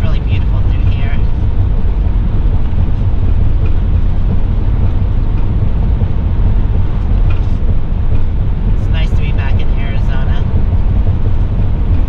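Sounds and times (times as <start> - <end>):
motorhome engine: 0.0 - 12.0
wind noise: 0.0 - 12.0.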